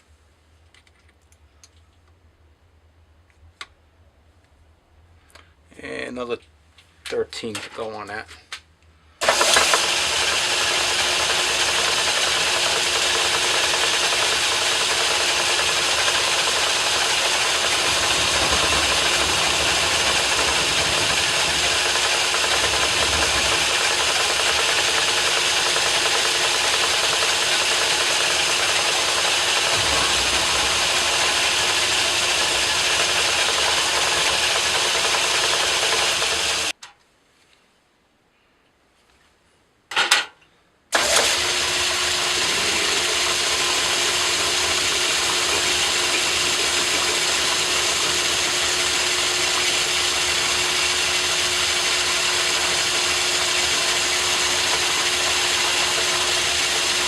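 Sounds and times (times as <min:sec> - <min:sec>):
metal lathe cutting steel: 0:09.2 - 0:36.7, 0:41.0 - 0:57.0.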